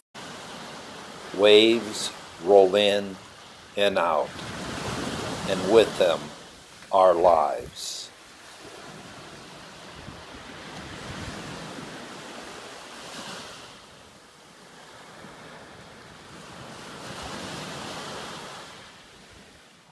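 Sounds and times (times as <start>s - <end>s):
ocean surf on a beach: 0.2s - 19.9s
wind on microphone: 9.8s - 12.6s.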